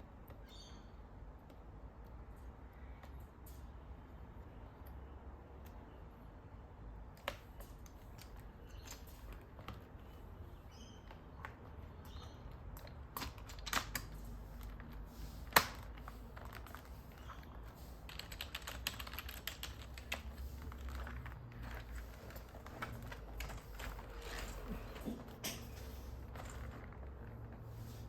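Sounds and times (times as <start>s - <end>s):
keyboard keys clicking: 11.0s - 24.0s.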